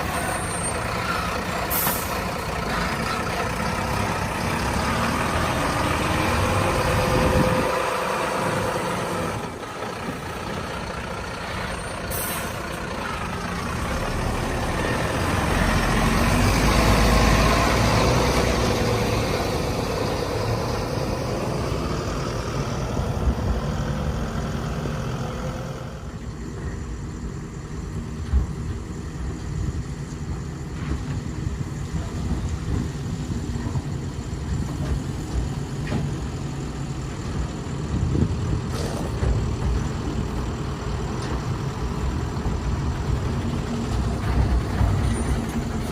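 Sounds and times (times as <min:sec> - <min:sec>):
heavy diesel engine revving: 0:00.0 - 0:26.1.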